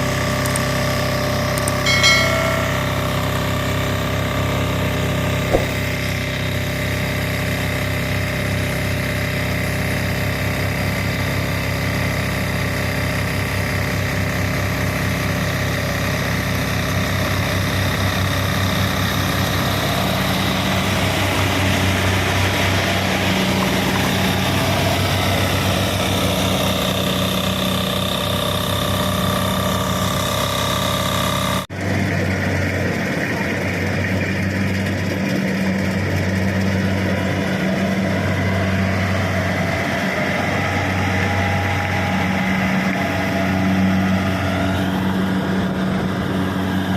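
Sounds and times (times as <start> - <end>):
combine harvester engine running: 0.0 - 46.9.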